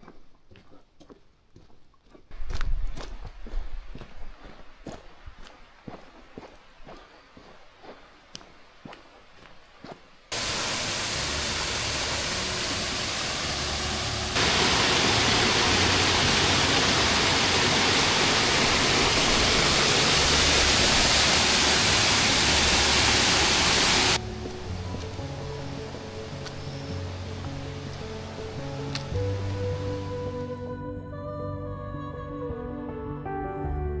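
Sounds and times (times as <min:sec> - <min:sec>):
rushing stream water: 0:10.3 - 0:30.5.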